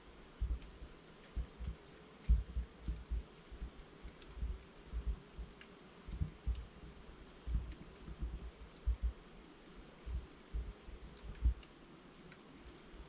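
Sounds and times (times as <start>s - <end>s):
soft low thumps of flames: 0.0s - 13.0s
wood fire crackling: 0.0s - 13.0s.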